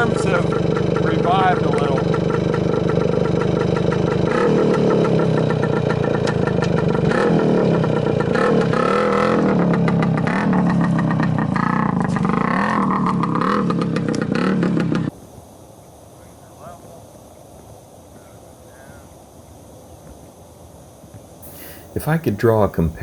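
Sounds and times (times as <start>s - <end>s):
motorcycle engine revving: 0.0s - 15.1s.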